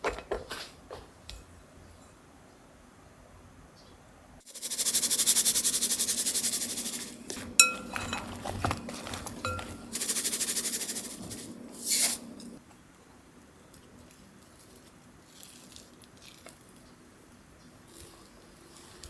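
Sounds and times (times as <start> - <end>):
utensil scraping a bowl: 4.5 - 12.6
bowl clinking: 6.0 - 12.6.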